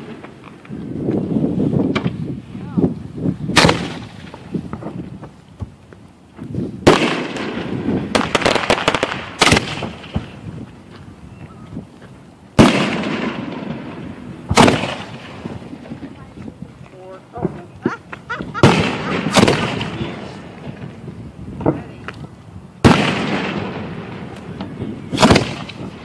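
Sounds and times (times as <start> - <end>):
firework bangs with echo: 3.5 - 5.7, 6.8 - 10.6, 12.6 - 16.3, 18.4 - 22.0, 22.8 - 26.0
rapid crackling pops: 3.5 - 11.0, 14.5 - 21.0, 21.6 - 26.0.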